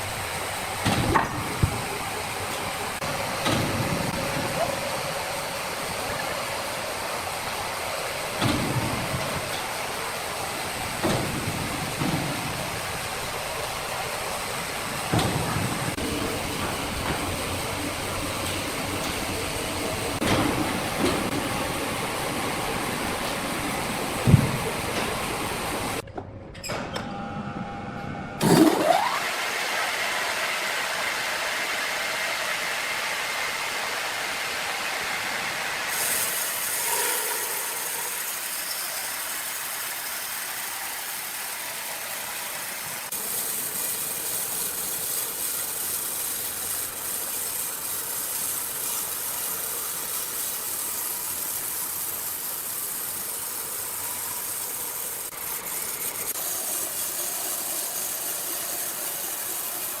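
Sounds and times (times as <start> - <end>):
sawmill machinery clatter and hiss: 0.0 - 26.1, 28.4 - 60.0.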